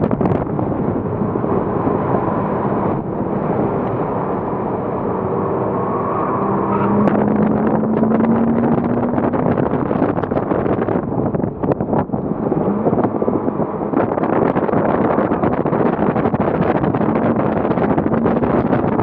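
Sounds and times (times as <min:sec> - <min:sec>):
car engine running hard: 0:00.0 - 0:19.0
wind and road noise: 0:00.0 - 0:19.0.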